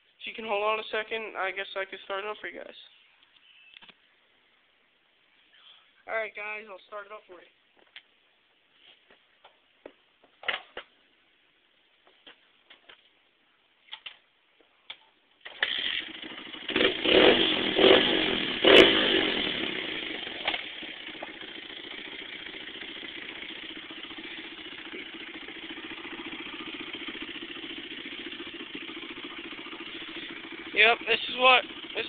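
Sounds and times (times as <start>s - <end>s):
dirt bike engine revving and idling: 15.6s - 32.0s.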